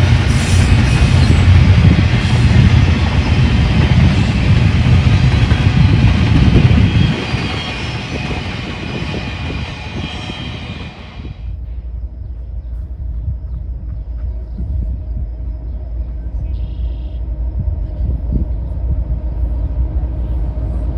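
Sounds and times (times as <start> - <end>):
train wheels rumbling on rail: 0.0 - 20.9.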